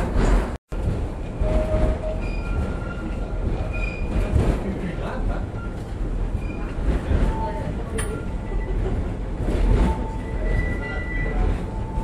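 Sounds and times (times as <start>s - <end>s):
train wheels rumbling: 0.0s - 12.0s
high-pitched wheel squeals: 9.8s - 12.0s.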